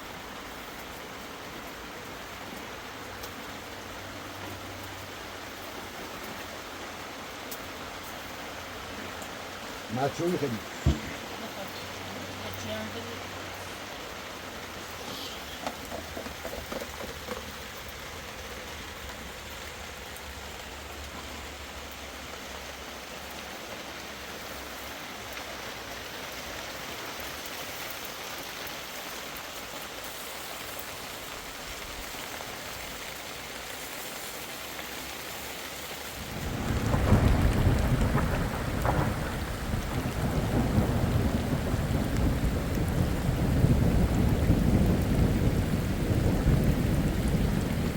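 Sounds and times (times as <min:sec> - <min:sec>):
heavy rain hissing: 0:00.0 - 0:47.9
deep rumble of thunder: 0:36.1 - 0:47.9.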